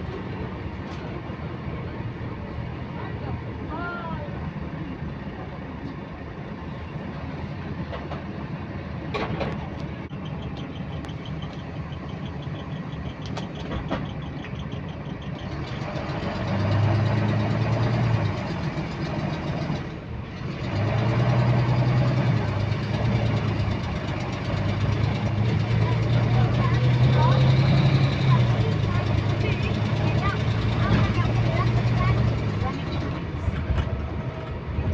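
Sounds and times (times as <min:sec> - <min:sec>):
diesel bus engine running: 0:00.0 - 0:34.9
fast regular engine clicking: 0:09.2 - 0:34.9.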